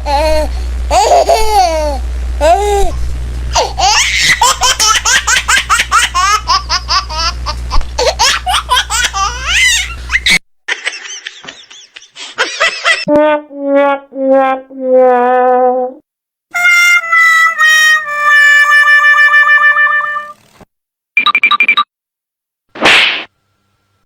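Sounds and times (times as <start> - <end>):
high rising laughter: 3.5 - 13.1.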